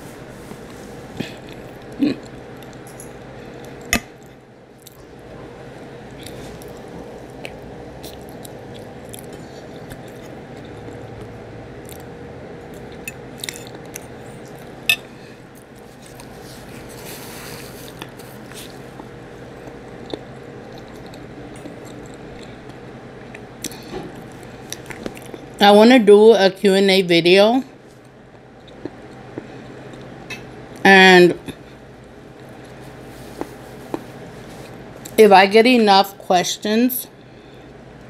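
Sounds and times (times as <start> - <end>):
faint steady hum: 0.0 - 38.0
person chewing meat: 6.1 - 14.9, 15.5 - 25.6, 28.0 - 30.5.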